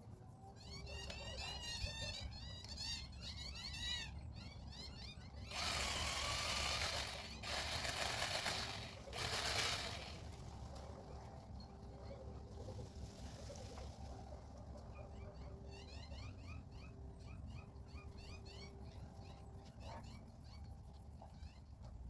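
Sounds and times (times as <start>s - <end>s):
pole saw cutting branch: 5.5s - 10.3s.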